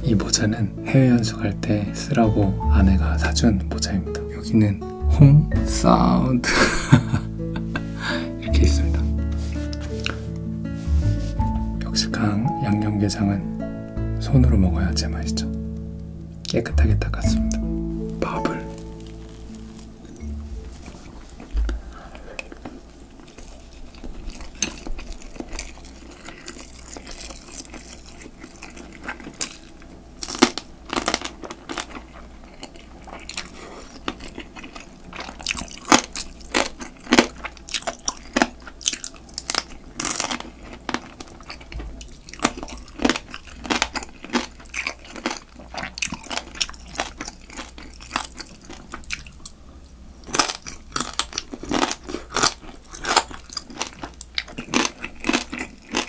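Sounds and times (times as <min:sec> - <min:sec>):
chewing rice: 0:08.9 - 0:10.9, 0:18.2 - 0:56.0
sharp crunches of crab shell: 0:30.2 - 0:31.9.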